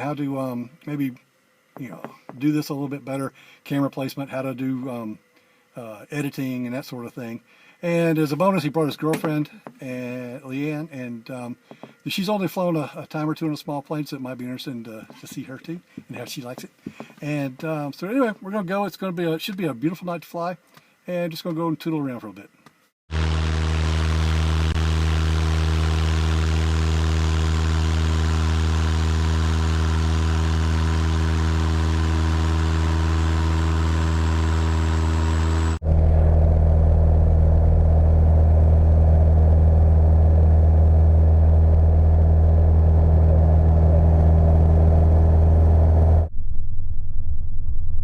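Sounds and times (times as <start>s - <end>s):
light airplane engine and propeller: 23.2s - 36.0s.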